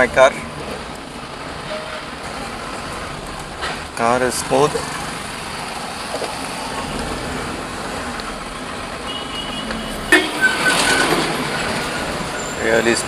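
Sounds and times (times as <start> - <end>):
car engine and tyres on road: 0.0 - 13.0
sudden loud noise with high tones: 9.0 - 12.9.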